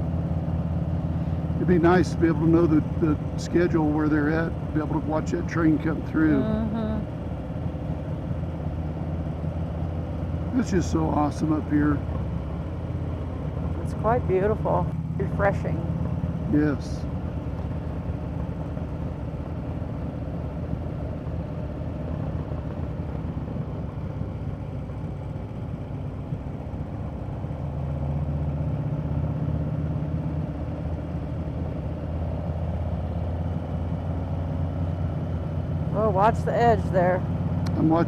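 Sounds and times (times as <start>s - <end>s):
motorcycle engine droning: 0.0s - 38.0s.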